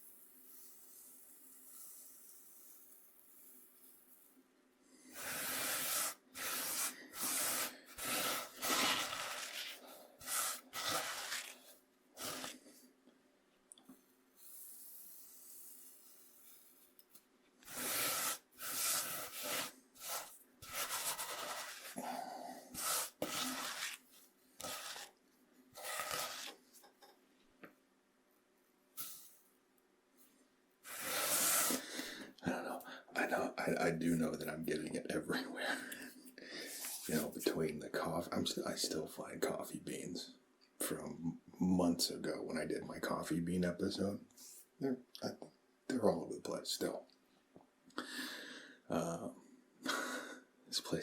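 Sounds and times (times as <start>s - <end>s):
corn meal scraped on cutting board: 5.1s - 12.7s, 17.6s - 26.6s, 30.8s - 32.1s.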